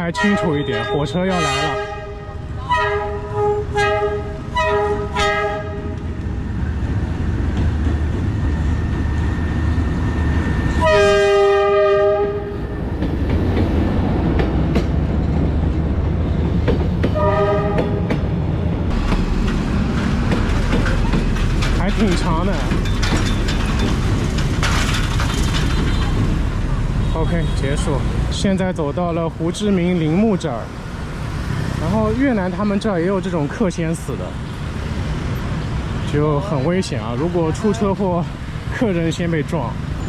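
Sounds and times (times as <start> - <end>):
train rumble and wheel clatter: 0.0 - 40.0
train horn blasts: 0.1 - 6.0, 10.7 - 12.6, 17.2 - 18.1.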